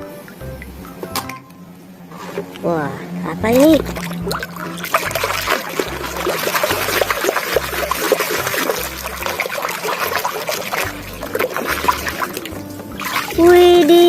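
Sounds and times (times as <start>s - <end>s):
water trickling and splashing: 3.4s - 14.0s.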